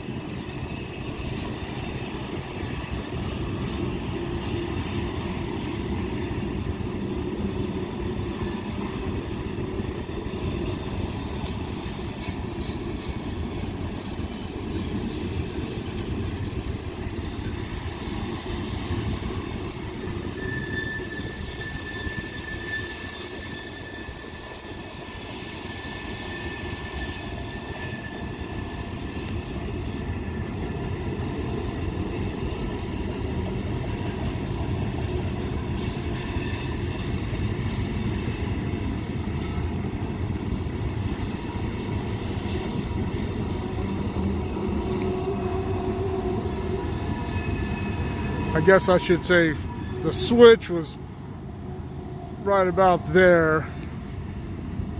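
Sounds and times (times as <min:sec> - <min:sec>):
train wheels rumbling on rail: 0:00.0 - 0:54.9
high wheel flange squeal: 0:04.0 - 0:29.6, 0:42.2 - 0:54.9.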